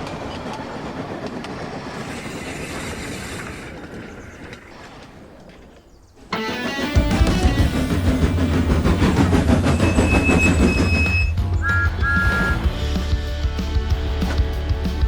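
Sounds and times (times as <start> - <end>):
faint clicks over rails: 0.0 - 6.4
model train rumbling: 0.0 - 15.0.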